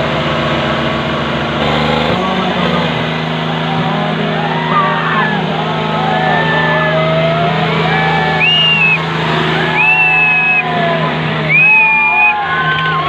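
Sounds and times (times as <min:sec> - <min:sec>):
tractor engines under load: 0:00.0 - 0:13.0
crowd shouting: 0:01.6 - 0:13.0.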